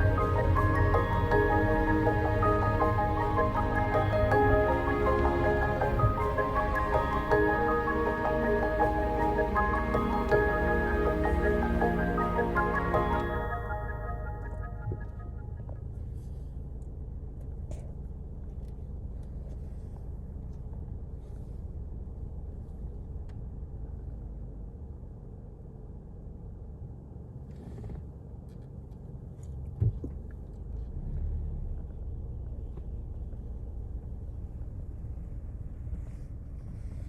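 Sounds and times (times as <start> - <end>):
low rumble: 0.0 - 25.3.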